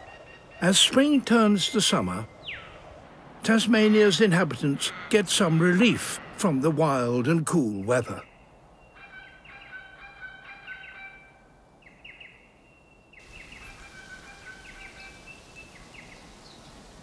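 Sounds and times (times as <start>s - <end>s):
birds chirping: 0.0s - 17.0s
background hiss: 11.4s - 17.0s.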